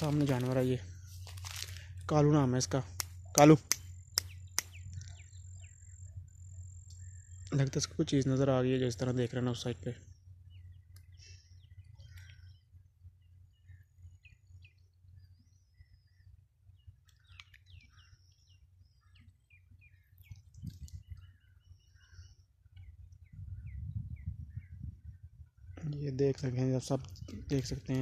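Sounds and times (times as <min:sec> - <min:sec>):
low rumble: 0:00.0 - 0:09.1
small birds chirping: 0:00.0 - 0:28.0.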